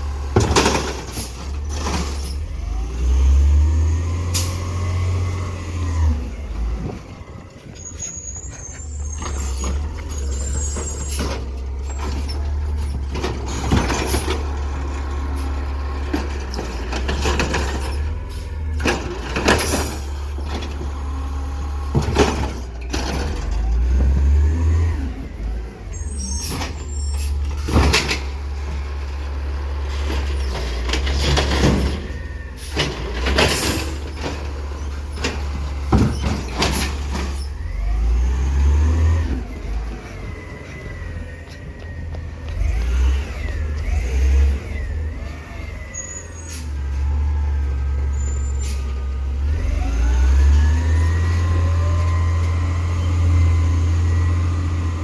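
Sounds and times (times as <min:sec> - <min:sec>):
truck engine rumble: 0:00.0 - 0:55.0
metal clanks and bangs: 0:00.3 - 0:02.5, 0:30.0 - 0:37.6.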